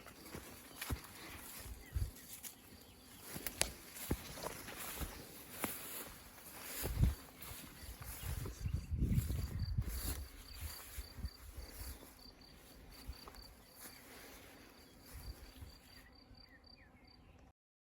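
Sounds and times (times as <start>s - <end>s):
cricket chirping: 0.0s - 16.9s.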